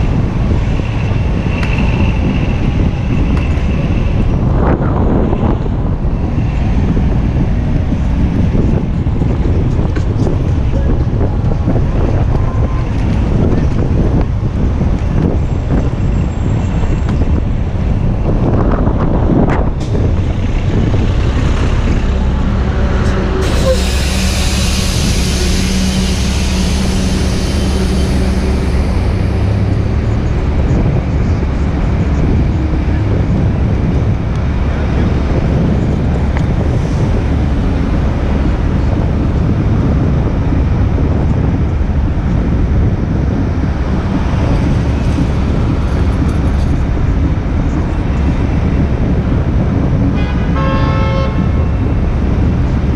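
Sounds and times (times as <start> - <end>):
street traffic: 0.0 - 52.9
vehicle engine hum: 0.0 - 52.9
wind on microphone: 0.0 - 52.9.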